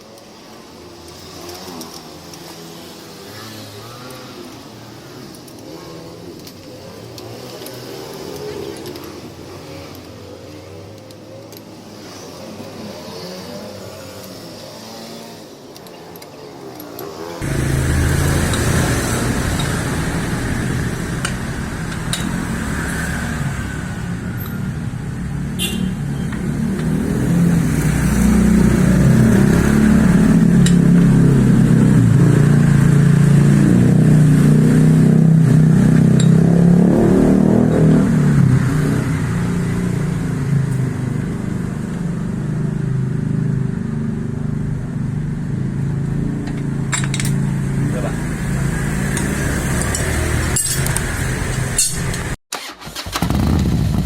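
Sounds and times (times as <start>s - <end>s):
motorcycle engine running: 17.4s - 36.8s, 37.9s - 52.4s.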